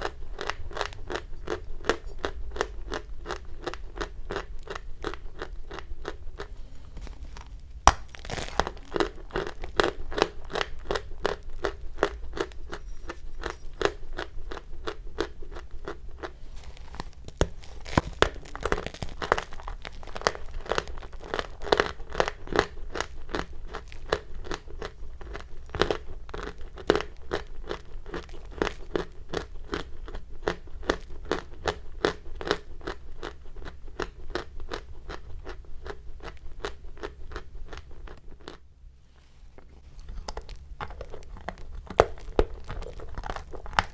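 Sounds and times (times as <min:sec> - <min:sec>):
chalk crunching: 0:06.5 - 0:11.1, 0:16.3 - 0:21.7.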